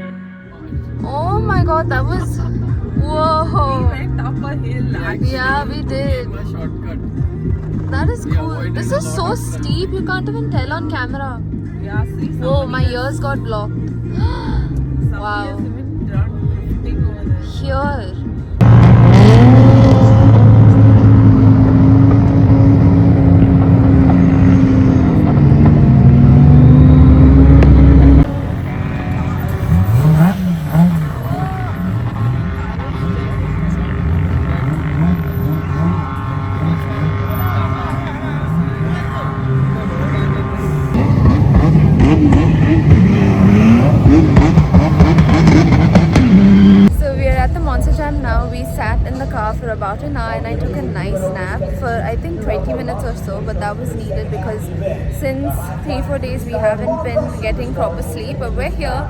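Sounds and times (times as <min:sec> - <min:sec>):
vehicle engine revving: 0:00.0 - 0:59.0.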